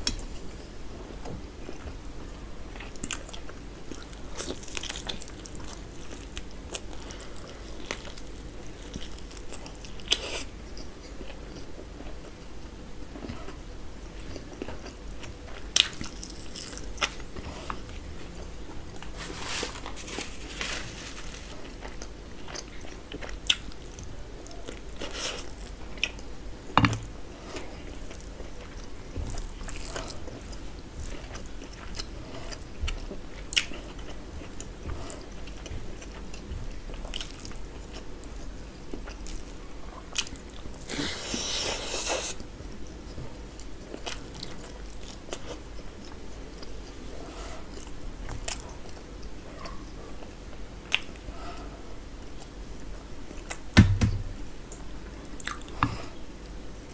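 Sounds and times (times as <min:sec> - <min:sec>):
person chewing food: 0:02.7 - 0:12.5, 0:13.1 - 0:56.6
knock: 0:53.8 - 0:54.3.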